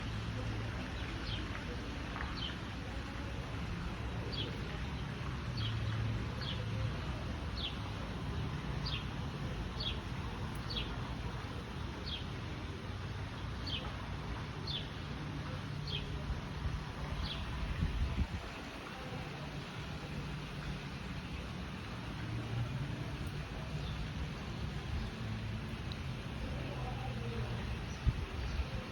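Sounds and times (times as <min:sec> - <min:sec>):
fountain water splashing: 0:00.0 - 0:28.9.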